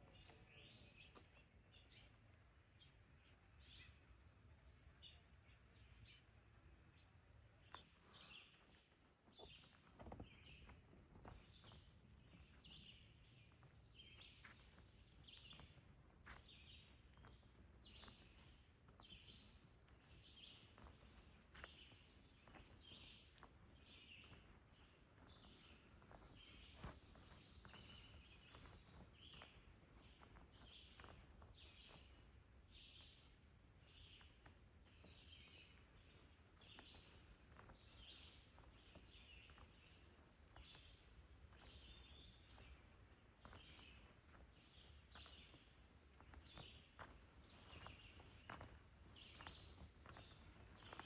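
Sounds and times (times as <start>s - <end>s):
faint birdsong chirping: 0.0s - 51.0s.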